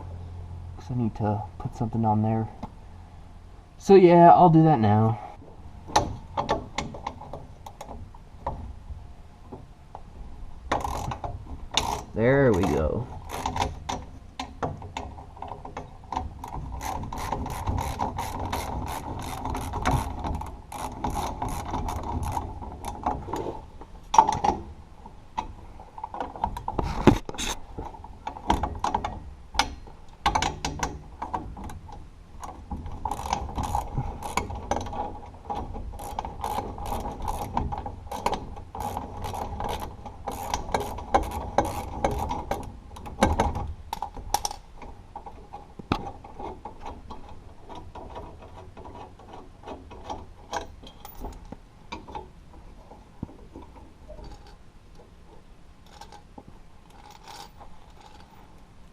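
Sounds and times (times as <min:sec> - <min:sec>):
ratchet wrench clicking: 0:10.7 - 0:11.2, 0:16.8 - 0:22.4, 0:38.1 - 0:42.3.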